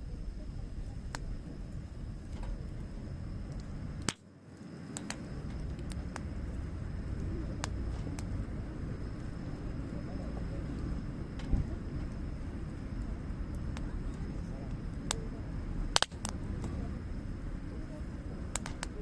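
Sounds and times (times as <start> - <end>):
low fire rumble: 0.0 - 19.0
wood fire crackling and popping: 0.0 - 19.0.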